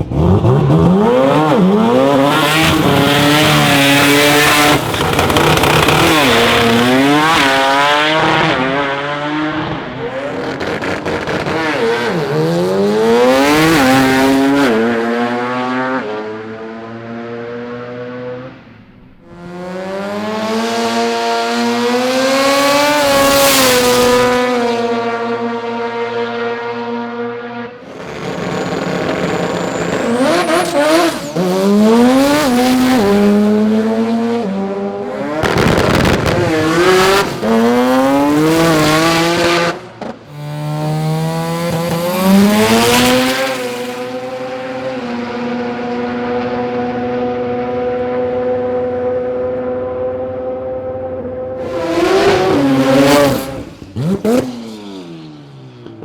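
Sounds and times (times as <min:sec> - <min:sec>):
rotary engines revving: 0:00.0 - 0:18.4, 0:27.8 - 0:49.8, 0:51.6 - 0:56.0.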